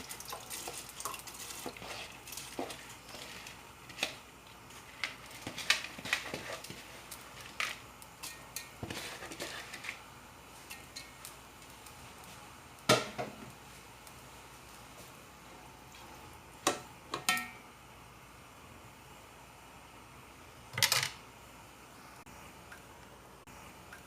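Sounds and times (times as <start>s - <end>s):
utensils clinking against cookware: 0.0s - 4.2s, 17.2s - 17.6s.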